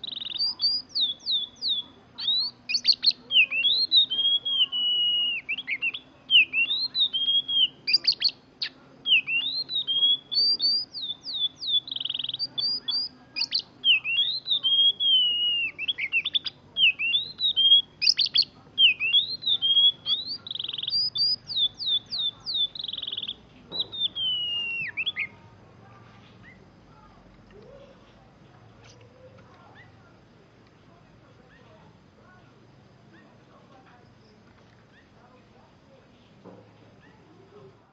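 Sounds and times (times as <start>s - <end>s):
bird singing whistled phrases: 0.0s - 25.4s.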